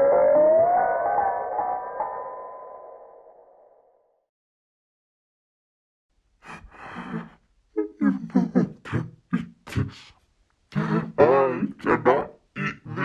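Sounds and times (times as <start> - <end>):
person making wordless vocal sounds: 6.4 - 13.0.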